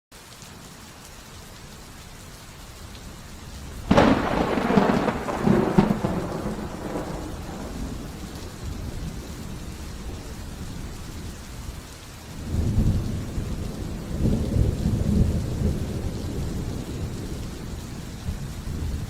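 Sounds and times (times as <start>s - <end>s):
steady rain: 0.1s - 19.0s
thunder rumbling: 3.6s - 11.8s, 12.4s - 19.0s.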